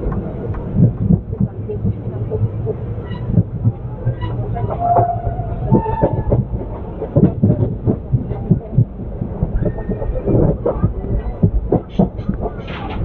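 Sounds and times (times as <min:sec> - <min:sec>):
train coach low rumble: 0:00.0 - 0:13.0.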